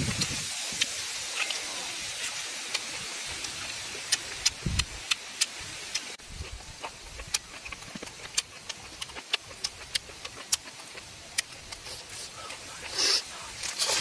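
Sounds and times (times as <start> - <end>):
crispy food chewing crackles: 0.1 - 14.0
loud crunch of biting: 3.4 - 14.0.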